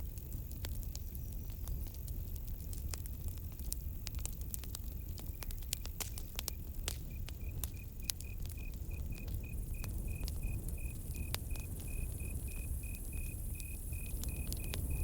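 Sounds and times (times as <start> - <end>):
campfire crackling and popping: 0.0 - 15.0
cricket chirping: 6.4 - 15.0.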